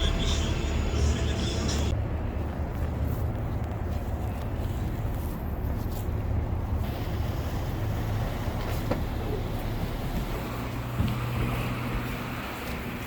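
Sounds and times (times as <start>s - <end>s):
road noise: 0.0s - 13.0s
traffic engines rumbling: 0.0s - 13.0s.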